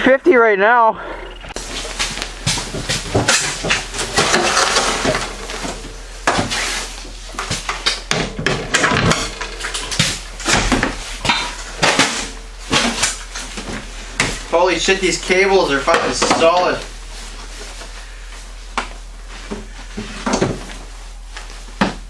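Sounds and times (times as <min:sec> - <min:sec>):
metal clamps clanking: 0:07.4 - 0:13.6.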